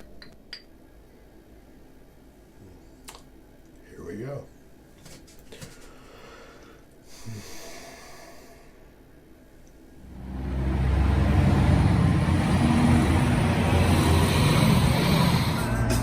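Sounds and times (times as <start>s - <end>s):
vehicle engine rumbling: 10.0s - 16.0s.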